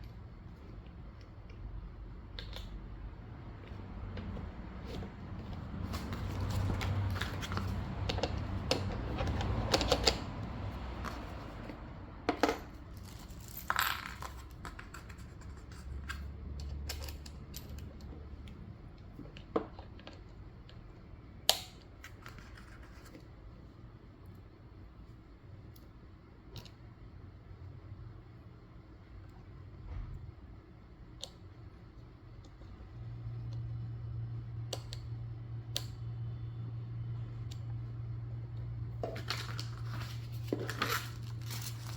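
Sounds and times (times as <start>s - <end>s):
rustling handling noise: 3.6s - 10.0s, 10.9s - 16.2s, 39.0s - 41.9s.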